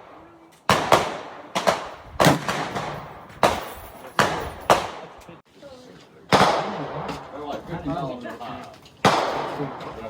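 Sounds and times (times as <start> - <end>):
gunshots echoing: 0.0 - 5.2, 6.3 - 7.3, 9.0 - 10.0.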